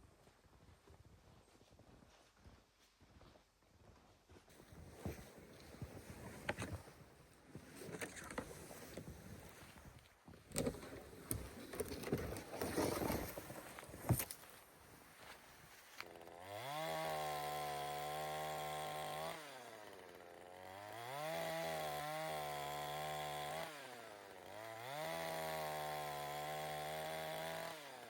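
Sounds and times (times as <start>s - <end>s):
chainsaw revving: 16.0s - 28.0s.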